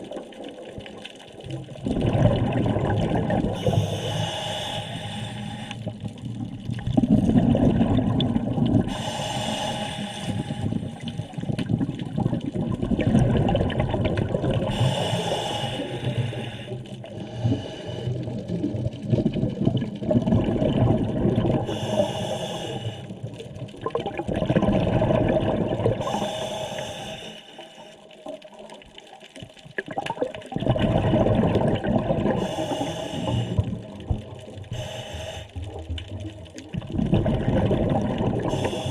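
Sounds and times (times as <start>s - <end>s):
exhaled bubbles burbling: 0.0s - 4.2s, 5.8s - 15.1s, 15.8s - 22.2s, 23.1s - 26.4s, 28.2s - 38.9s
diver inhaling through regulator: 3.5s - 6.0s, 8.8s - 11.2s, 14.7s - 18.4s, 21.6s - 23.2s, 26.0s - 28.0s, 32.3s - 33.8s, 34.7s - 35.8s, 38.4s - 38.9s.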